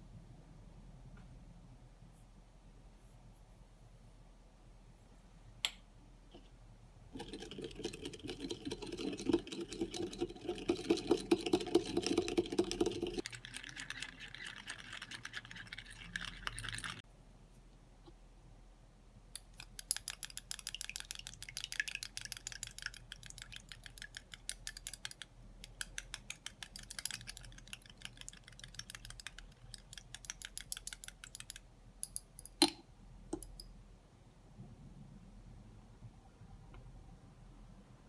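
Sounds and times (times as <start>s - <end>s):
utensil clicking on small dishes: 19.4s - 32.8s.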